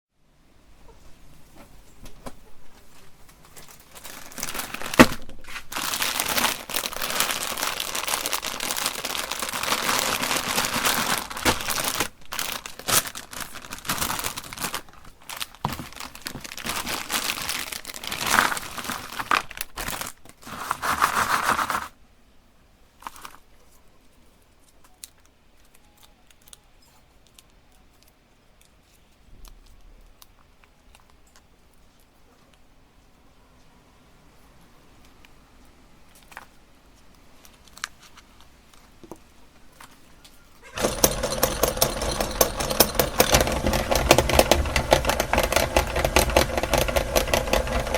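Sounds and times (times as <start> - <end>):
plastic wrappers crinkling: 3.0 - 22.0, 23.0 - 23.5, 24.6 - 32.1, 37.4 - 39.0, 40.6 - 47.9.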